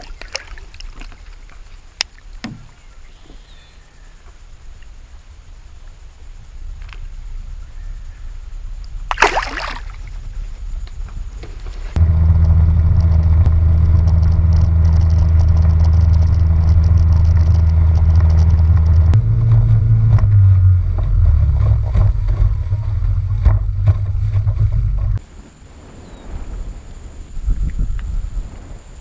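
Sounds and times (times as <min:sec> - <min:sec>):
outboard motor drone: 0:02.4 - 0:03.8, 0:11.4 - 0:25.2.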